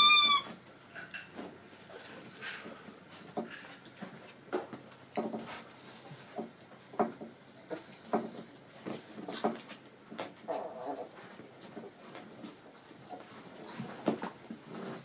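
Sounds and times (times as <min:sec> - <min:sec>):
puppies yelping: 0:00.0 - 0:00.5.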